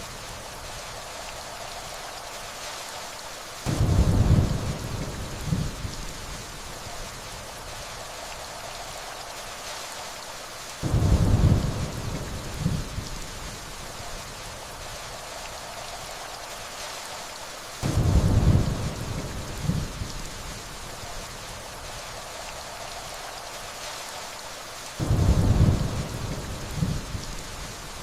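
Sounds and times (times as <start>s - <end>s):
steady rainfall: 0.0s - 28.0s
thunder rumbling: 3.7s - 6.4s, 10.8s - 13.6s, 17.8s - 20.6s, 25.0s - 27.9s.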